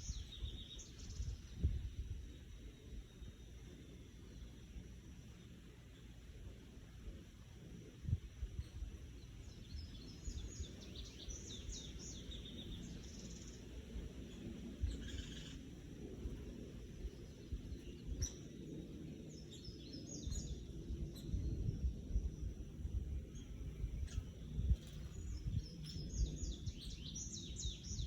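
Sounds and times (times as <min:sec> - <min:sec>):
birds chirping: 0:08.6 - 0:28.0.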